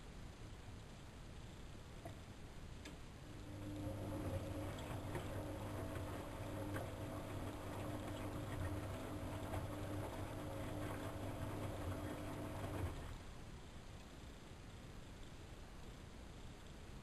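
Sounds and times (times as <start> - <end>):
washing machine motor humming: 3.1 - 13.3.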